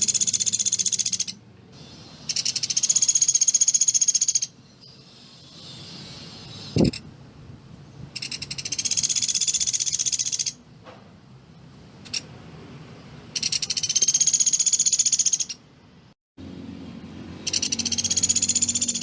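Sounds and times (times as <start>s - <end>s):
woodpecker rattling trill: 0.0s - 7.0s, 8.1s - 10.6s, 13.3s - 15.6s, 17.4s - 19.0s.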